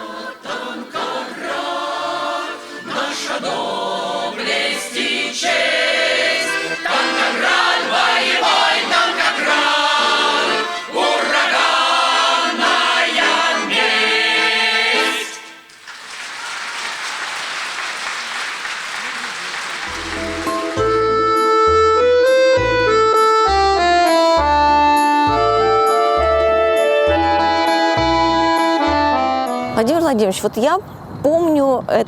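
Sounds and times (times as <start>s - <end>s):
choir singing: 0.0s - 15.7s, 19.9s - 21.1s
applause: 15.6s - 21.1s.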